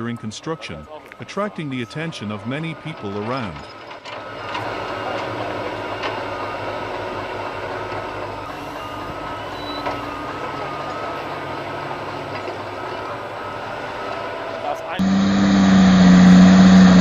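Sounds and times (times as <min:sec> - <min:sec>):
heavy diesel engines running: 0:00.0 - 0:17.0
reversing alarm beeping: 0:08.5 - 0:12.1, 0:13.4 - 0:17.0.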